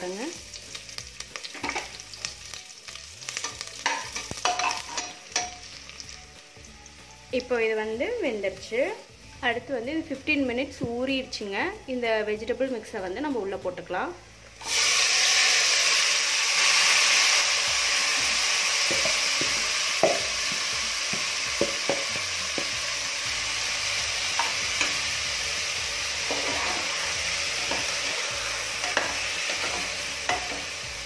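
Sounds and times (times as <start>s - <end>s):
vegetables sizzling in hot oil: 0.0s - 10.8s, 14.2s - 31.0s
metal ladle scraping a pot: 26.2s - 30.7s.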